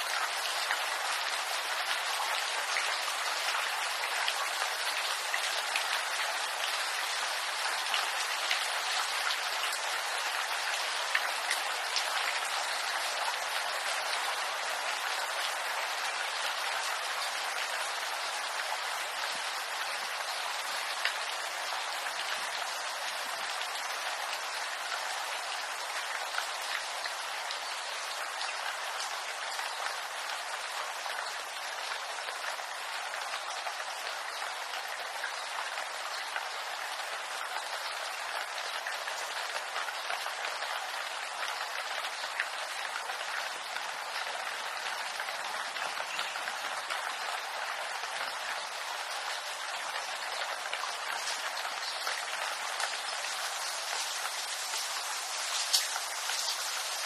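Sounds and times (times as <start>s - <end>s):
rain pattering on leaves: 0.0s - 57.0s.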